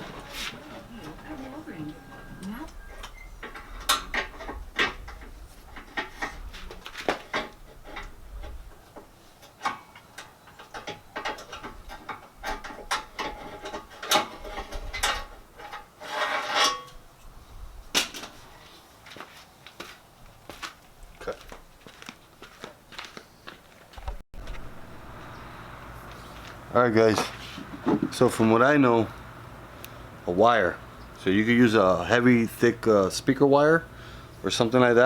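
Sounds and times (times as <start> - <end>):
rattling scrape: 0.0 - 8.8, 10.7 - 17.0.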